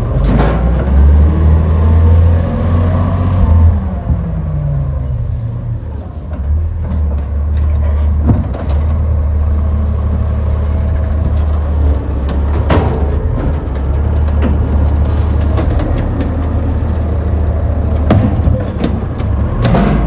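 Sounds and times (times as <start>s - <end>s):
truck engine rumbling: 0.0s - 20.0s
high squeal: 4.9s - 5.9s.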